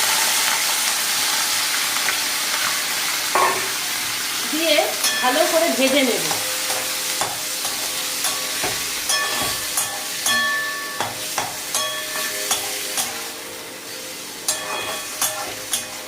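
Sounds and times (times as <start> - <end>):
mince sizzling in hot oil: 0.0 - 16.0
spatula clinking on metal pan: 5.0 - 5.5, 6.3 - 13.2, 14.5 - 16.0.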